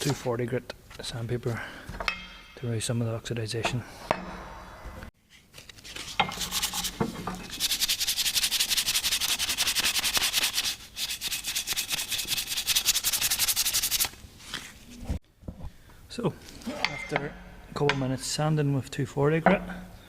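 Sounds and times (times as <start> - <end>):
sandpaper scraping on metal: 6.0 - 14.1.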